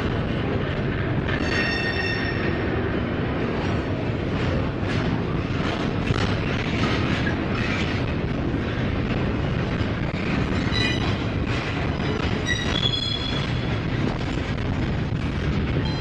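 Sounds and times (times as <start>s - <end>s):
train wheels rumbling on rail: 0.0s - 16.0s
high wheel squeals: 12.4s - 13.7s.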